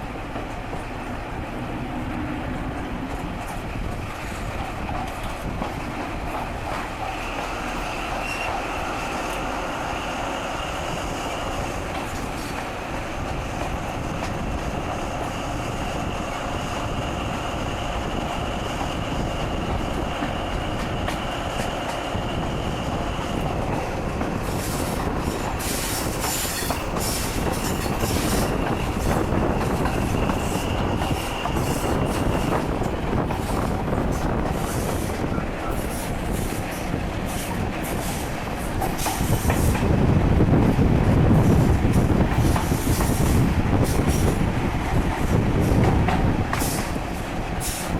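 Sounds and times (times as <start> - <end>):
train wheels rumbling on rail: 0.0 - 47.9
high wheel squeal: 7.1 - 11.8, 25.6 - 32.8.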